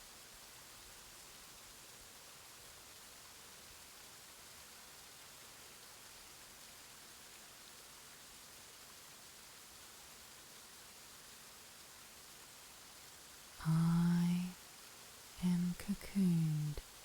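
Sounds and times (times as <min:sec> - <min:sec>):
rain-like hiss: 0:00.0 - 0:17.0.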